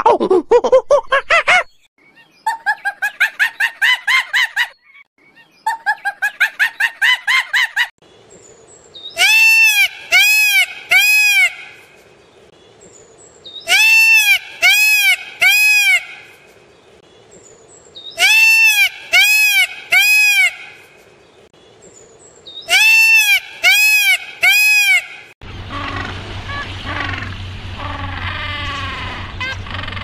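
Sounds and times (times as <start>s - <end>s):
peacock calling: 9.1s - 11.9s, 13.6s - 16.4s, 18.1s - 20.9s, 22.6s - 30.0s.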